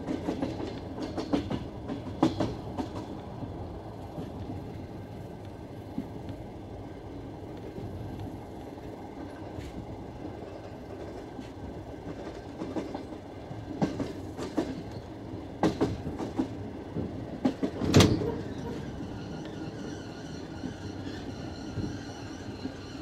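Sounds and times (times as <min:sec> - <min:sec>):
clickety-clack over rail joints: 0:00.0 - 0:23.0
train wheels rumbling on rails: 0:00.0 - 0:23.0.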